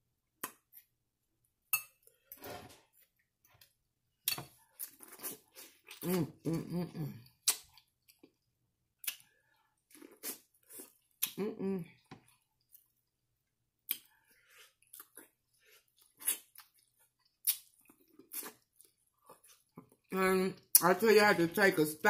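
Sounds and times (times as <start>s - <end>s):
person humming mmm: 6.0s - 7.2s, 11.2s - 11.9s
person chewing corn on the cob: 7.4s - 11.4s, 13.8s - 20.1s.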